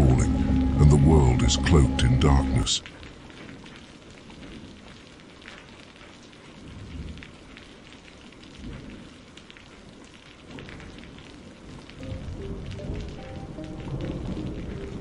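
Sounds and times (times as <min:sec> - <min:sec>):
low rumble: 0:00.0 - 0:02.8
steady rain falling: 0:00.0 - 0:15.0.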